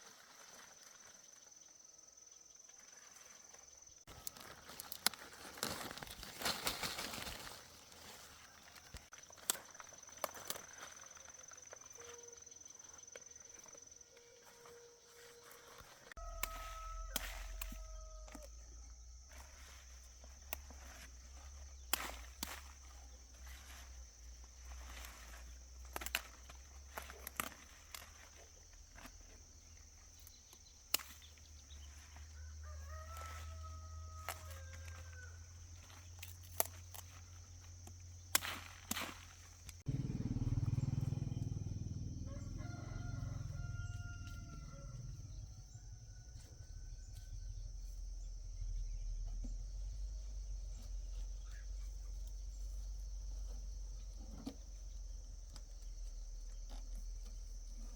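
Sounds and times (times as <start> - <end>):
rooster crowing: 14.5 - 18.9, 32.2 - 35.5, 39.9 - 47.8.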